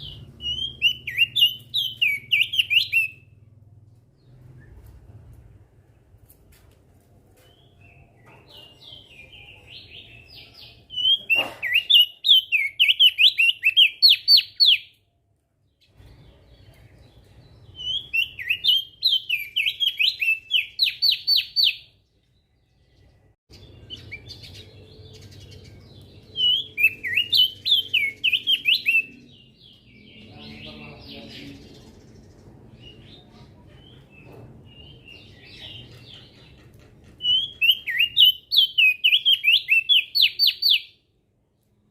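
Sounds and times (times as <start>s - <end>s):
bird singing whistled notes: 0.0s - 3.4s, 8.9s - 15.0s, 17.7s - 22.0s, 22.9s - 30.8s, 37.2s - 41.0s
soft bird twittering: 0.0s - 3.4s, 15.8s - 36.6s.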